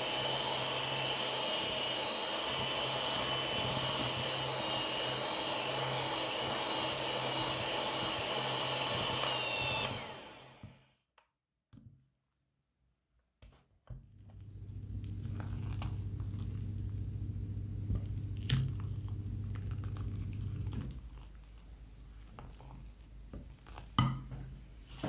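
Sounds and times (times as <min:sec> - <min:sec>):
electric hand mixer running: 0:00.0 - 0:10.9, 0:14.3 - 0:20.9.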